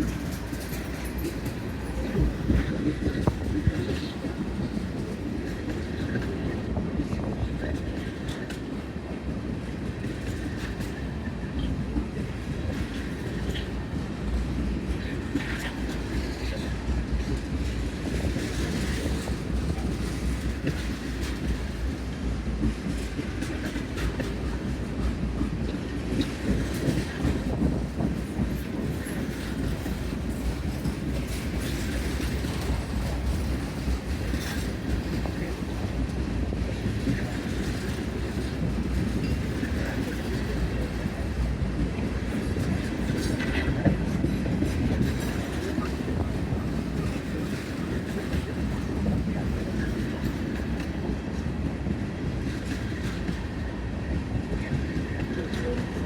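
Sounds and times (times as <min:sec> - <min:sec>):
wheels clicking over rail joints: 0:00.0 - 0:06.6
freight train rumbling past: 0:00.0 - 0:56.0.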